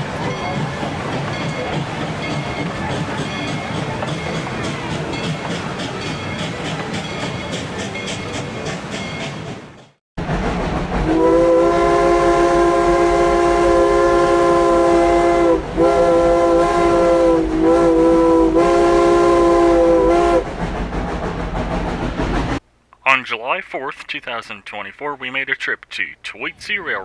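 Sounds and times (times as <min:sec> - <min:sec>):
train rumbling and clattering: 0:00.0 - 0:22.6
steam locomotive chime whistle: 0:11.0 - 0:20.4.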